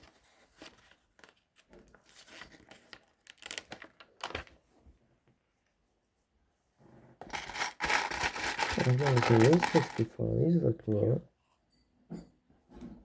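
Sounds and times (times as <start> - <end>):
plastic bags rustling: 7.3 - 10.1.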